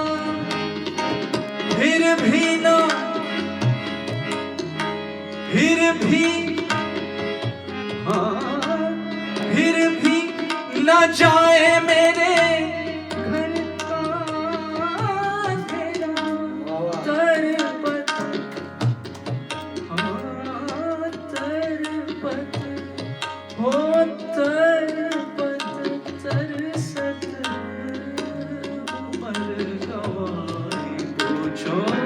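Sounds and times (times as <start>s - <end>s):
tabla strokes: 9.4s - 27.6s.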